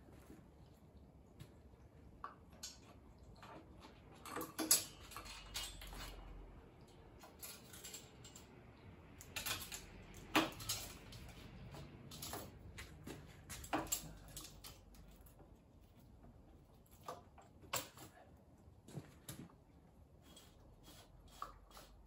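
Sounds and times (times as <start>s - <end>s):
saw chain metal clinks and rattles: 4.3s - 6.4s, 7.2s - 8.6s, 9.2s - 15.4s.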